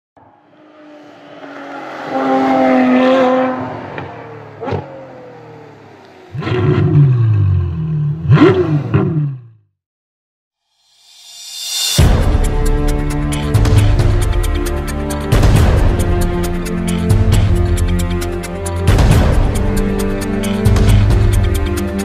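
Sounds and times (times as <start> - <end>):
car engine revving: 0.2 - 9.5.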